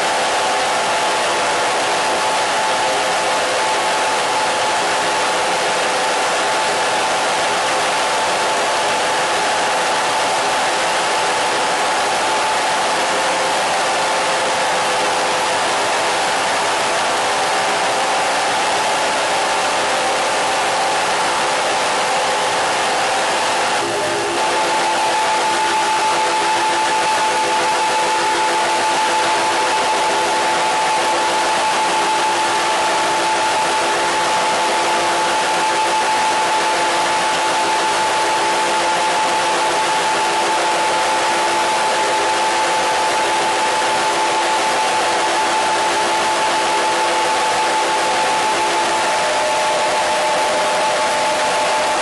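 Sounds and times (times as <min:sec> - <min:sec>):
radio static hiss: 0:23.6 - 0:52.0
steady tones: 0:23.6 - 0:52.0.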